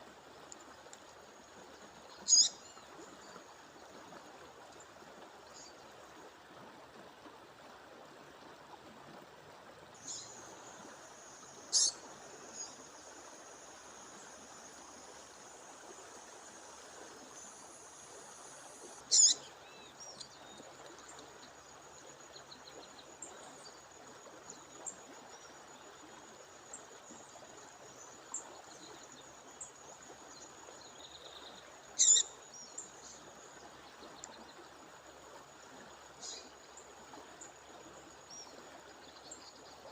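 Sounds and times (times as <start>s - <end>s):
songbird calls: 2.1s - 3.4s, 10.0s - 13.2s, 17.3s - 21.6s, 30.3s - 33.3s, 36.2s - 36.6s.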